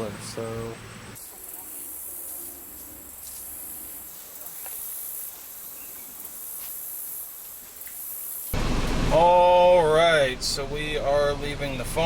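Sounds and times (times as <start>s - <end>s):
insect chorus drone: 0.4s - 8.6s.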